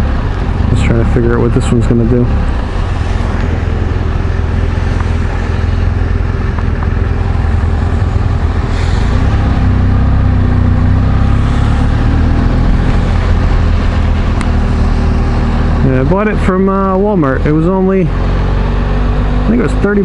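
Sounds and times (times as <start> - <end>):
motorcycle engine running: 0.0 - 20.0
wind rushing: 2.3 - 16.4.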